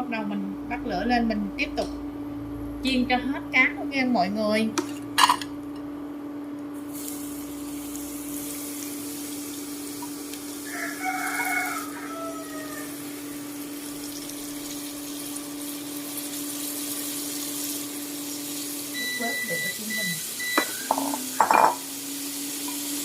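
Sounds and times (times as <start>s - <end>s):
steady low hum: 0.0s - 11.0s
fish sizzling in hot oil: 6.8s - 23.0s
rooster crowing: 10.6s - 13.6s.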